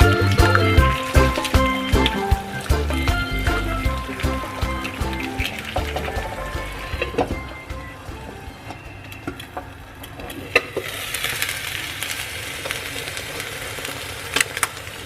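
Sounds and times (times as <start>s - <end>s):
food sizzling in a hot pan: 10.8s - 15.0s.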